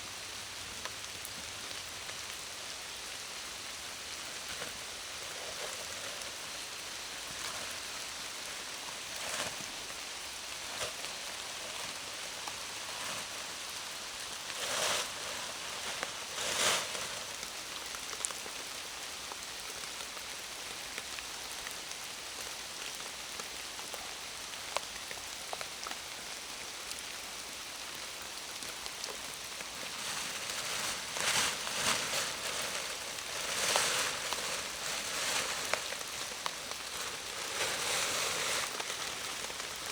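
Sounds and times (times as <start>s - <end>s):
heavy rain on leaves: 0.0s - 39.9s.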